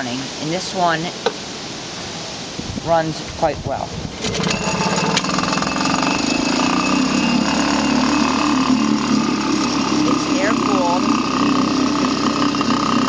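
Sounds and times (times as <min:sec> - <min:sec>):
outboard motor running: 0:04.0 - 0:13.0.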